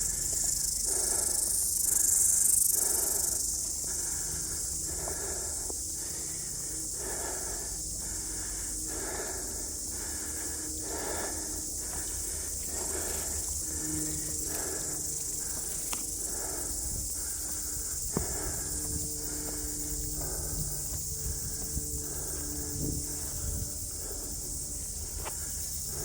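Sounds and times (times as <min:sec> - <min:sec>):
high-pitched insect hiss: 0:00.0 - 0:26.0
wind rumbling on microphone: 0:16.3 - 0:25.3
footsteps: 0:17.4 - 0:21.8.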